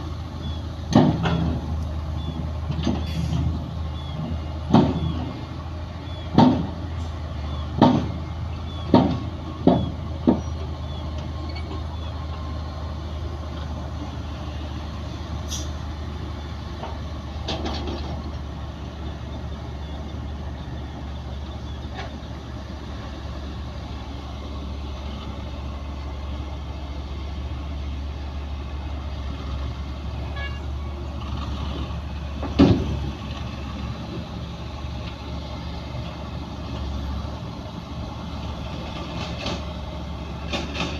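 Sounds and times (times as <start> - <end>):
diesel earthmoving machinery droning: 0.0 - 40.9
sharp knocks: 4.7 - 5.2, 6.3 - 6.8, 7.8 - 8.2, 8.9 - 10.5.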